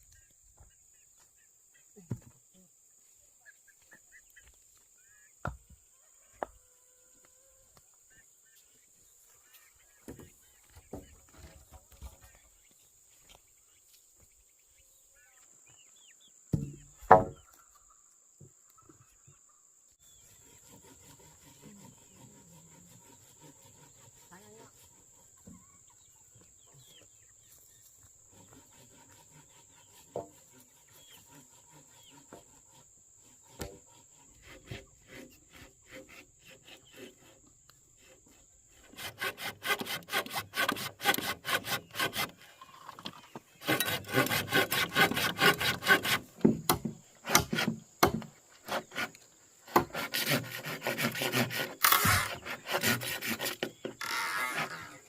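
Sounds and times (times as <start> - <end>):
hand saw cutting wood: 20.2 - 25.6, 28.3 - 55.0.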